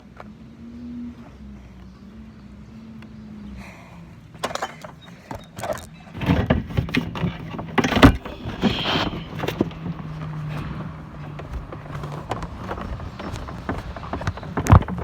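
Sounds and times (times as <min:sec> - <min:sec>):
metal air conditioner knocks and rattles: 0:06.1 - 0:15.0.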